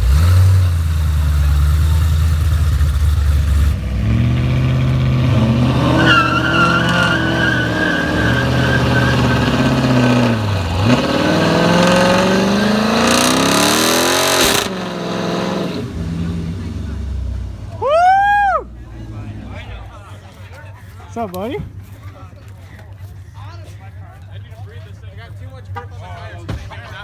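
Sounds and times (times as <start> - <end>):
car engine revving: 0.0 - 17.8.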